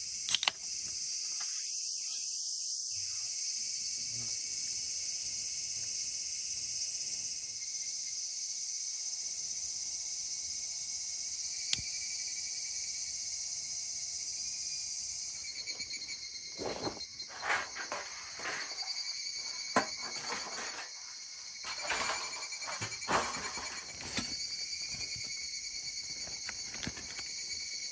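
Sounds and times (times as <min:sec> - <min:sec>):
night insects trilling: 0:00.0 - 0:27.9.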